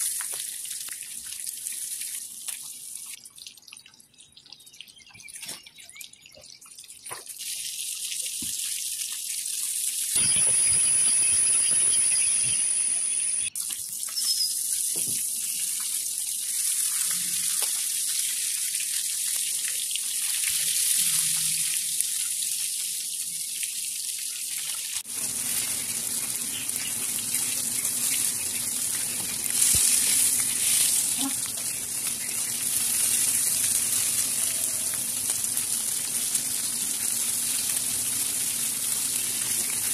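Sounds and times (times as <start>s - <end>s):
fish sizzling in hot oil: 10.0s - 13.6s, 24.5s - 39.9s.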